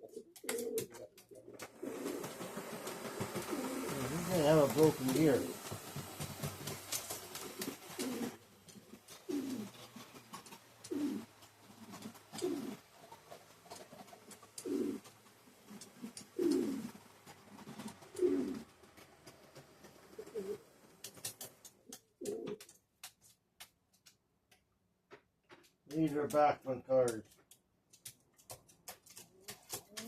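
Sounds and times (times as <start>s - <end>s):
pigeon cooing: 0.0s - 22.7s.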